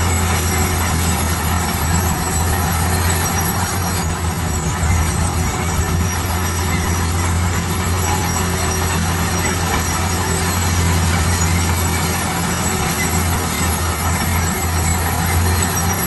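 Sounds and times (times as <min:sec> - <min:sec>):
constant broad noise: 0:00.0 - 0:16.0
low engine drone: 0:00.0 - 0:16.0.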